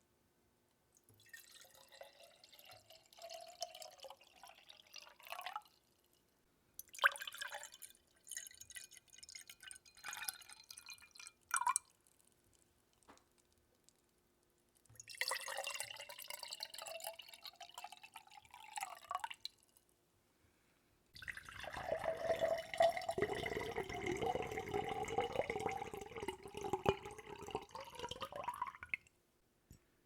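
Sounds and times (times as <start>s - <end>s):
water dripping and trickling: 14.9s - 19.8s, 21.2s - 29.1s.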